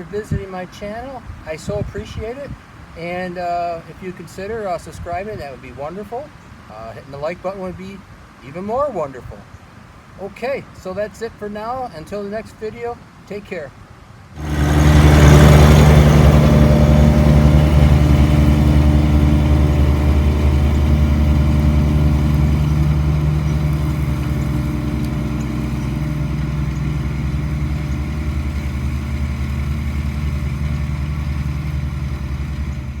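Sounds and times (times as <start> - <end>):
tractor diesel engine running: 14.4 - 33.0.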